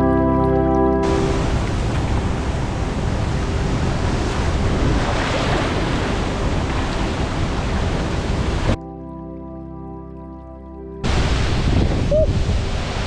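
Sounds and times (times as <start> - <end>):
waterfall rushing: 1.0 - 8.8, 11.0 - 13.0
wind buffeting microphone: 1.0 - 8.8, 11.0 - 13.0.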